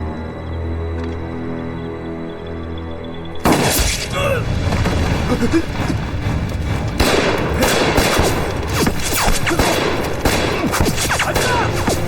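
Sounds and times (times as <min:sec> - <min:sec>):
rapid gunshots: 0:07.0 - 0:12.0.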